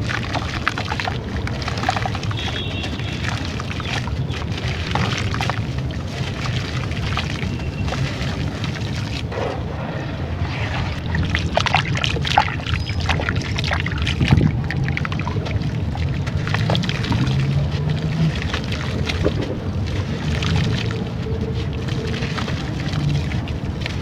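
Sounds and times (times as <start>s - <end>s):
low rumble: 4.8s - 21.6s.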